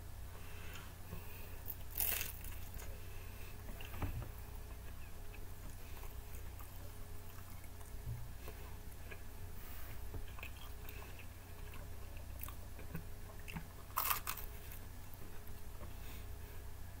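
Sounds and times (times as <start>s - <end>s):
steady low hum: 0.0s - 17.0s
person biting and chewing: 1.7s - 3.0s, 10.2s - 14.8s.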